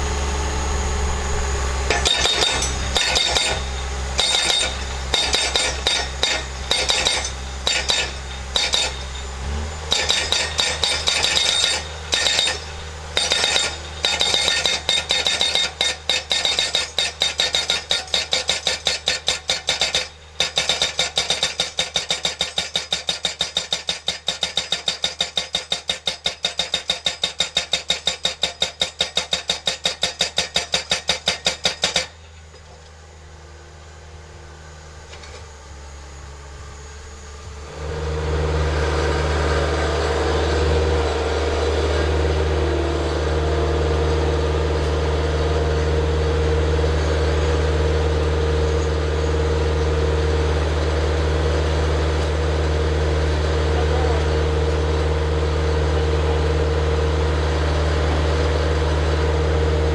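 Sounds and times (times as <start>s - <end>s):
diesel engine running: 0.0s - 19.4s, 33.0s - 59.9s
post driver hammering: 1.9s - 32.1s.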